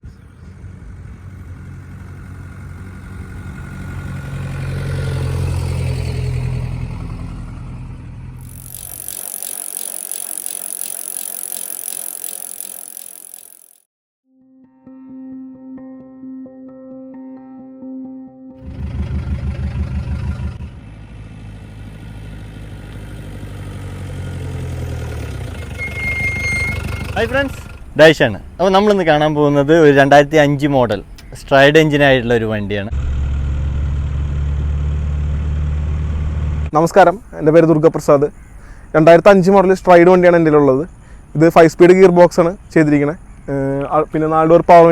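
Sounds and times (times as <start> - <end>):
car engine low rumble: 0.1 - 8.4, 18.6 - 25.9, 32.3 - 36.7
car engine running: 18.6 - 21.2.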